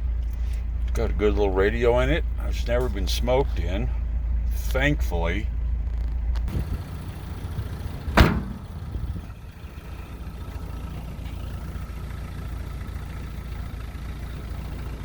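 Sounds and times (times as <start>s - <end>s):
truck engine idling: 0.0s - 15.0s
door slamming: 8.1s - 8.9s.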